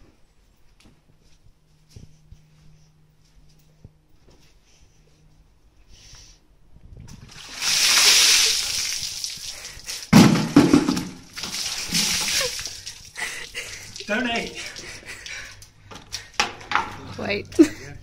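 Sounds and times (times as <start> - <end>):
water splashing and sloshing: 7.0 - 15.7.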